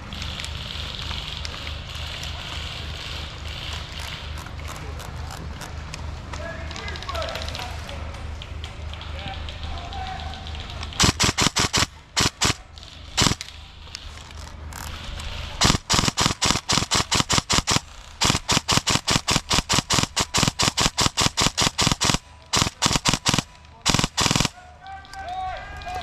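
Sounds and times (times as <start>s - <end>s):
airsoft gun firing: 10.9s - 13.8s, 15.6s - 24.7s.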